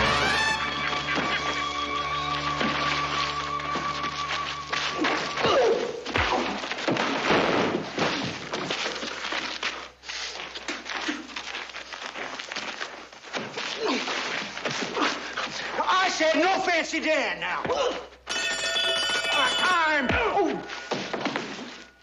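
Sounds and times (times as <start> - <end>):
background music: 0.0 - 6.0
scuffling: 0.8 - 15.8, 19.2 - 22.0.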